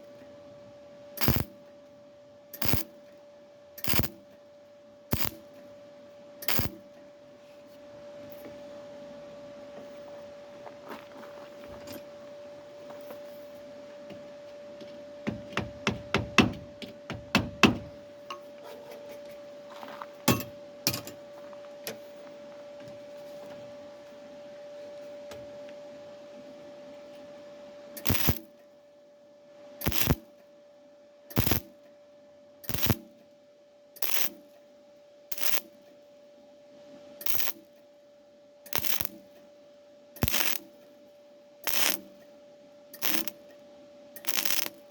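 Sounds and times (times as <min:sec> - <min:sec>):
steady hum: 0:00.0 - 0:44.9
welder crackling bursts: 0:01.2 - 0:01.6, 0:02.6 - 0:02.9, 0:03.8 - 0:04.2, 0:05.1 - 0:05.5, 0:06.5 - 0:06.8, 0:28.0 - 0:28.5, 0:29.8 - 0:30.2, 0:31.4 - 0:31.7, 0:32.7 - 0:33.0, 0:34.0 - 0:34.4, 0:35.3 - 0:35.7, 0:37.2 - 0:37.6, 0:38.7 - 0:39.2, 0:40.2 - 0:40.7, 0:41.6 - 0:42.2, 0:43.0 - 0:43.4, 0:44.2 - 0:44.9.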